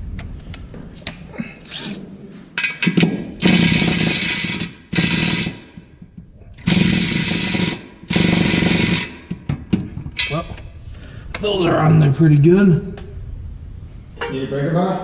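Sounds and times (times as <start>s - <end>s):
impact wrench hammering: 2.6s - 5.9s, 6.6s - 9.9s.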